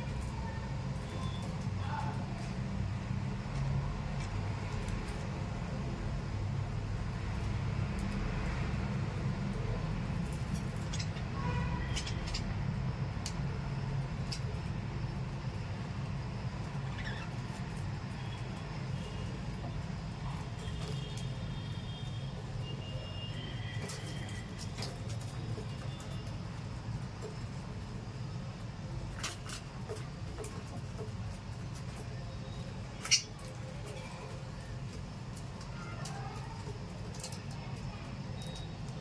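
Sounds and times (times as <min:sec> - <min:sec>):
parrots chirping and clicking: 0:03.6 - 0:05.2, 0:10.2 - 0:11.3, 0:11.9 - 0:13.4, 0:14.2 - 0:14.8, 0:16.6 - 0:17.8, 0:29.1 - 0:34.1, 0:34.9 - 0:39.0.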